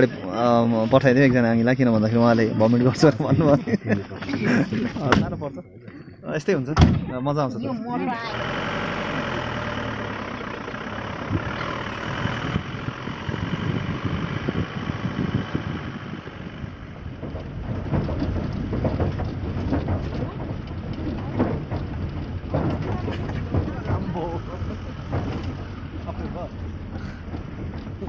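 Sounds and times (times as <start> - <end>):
vehicle knocks and rattles: 1.0 - 5.6, 8.4 - 28.0
vehicle engine drone: 7.6 - 28.0.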